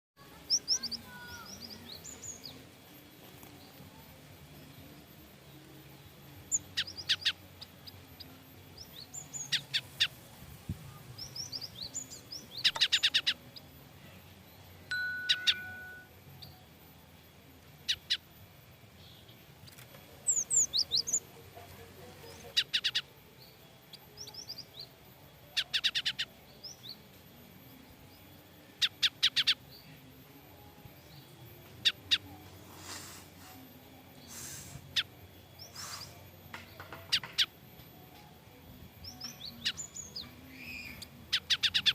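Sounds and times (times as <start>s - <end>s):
bird alarm calls: 12.6s - 13.4s, 22.5s - 23.1s, 25.6s - 26.3s.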